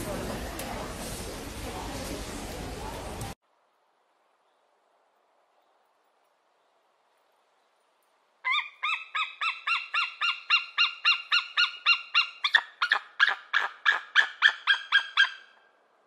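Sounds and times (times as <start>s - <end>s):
eagle yelping calls: 8.4s - 15.6s.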